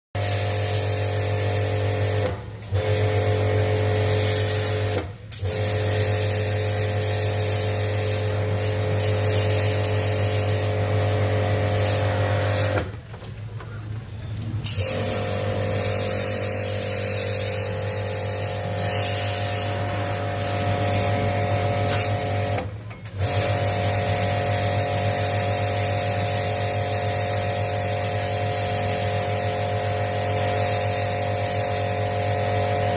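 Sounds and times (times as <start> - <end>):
electric motor humming: 14.8 - 22.6.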